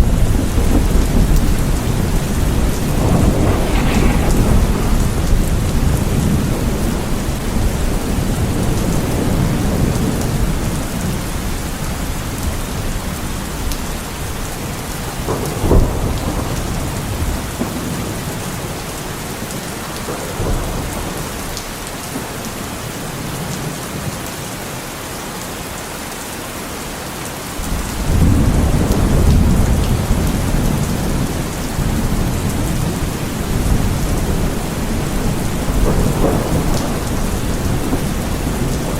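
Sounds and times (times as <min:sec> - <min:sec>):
thunder rumbling: 0:00.0 - 0:11.0, 0:28.0 - 0:38.9
heavy rain falling: 0:00.0 - 0:38.9
sharp thunder crack: 0:00.6 - 0:07.9.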